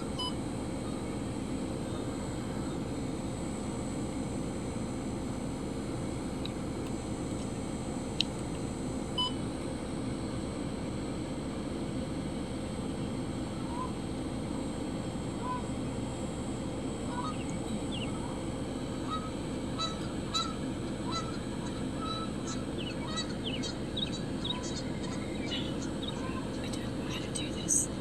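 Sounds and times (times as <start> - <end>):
low background rush: 0.0 - 28.0
geese honking: 17.1 - 18.1, 19.0 - 26.6.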